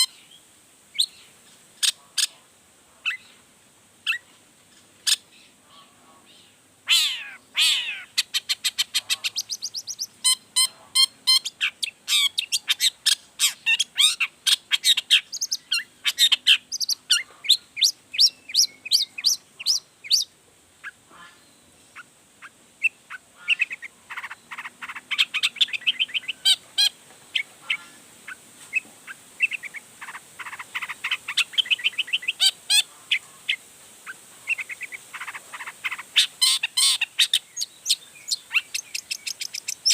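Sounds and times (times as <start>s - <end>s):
shrike singing chattering notes: 8.2s - 10.4s.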